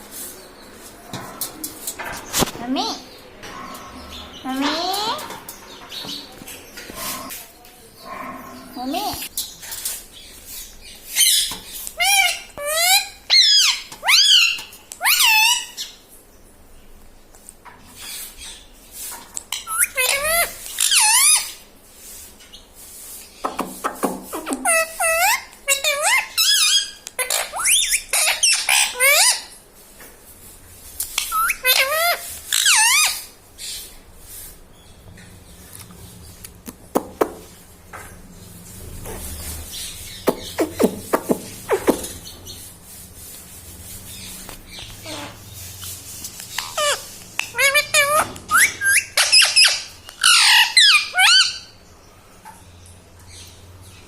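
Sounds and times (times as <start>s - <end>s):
parakeet squawks: 19.5s - 21.6s, 24.4s - 29.5s, 31.2s - 33.8s, 44.8s - 51.7s.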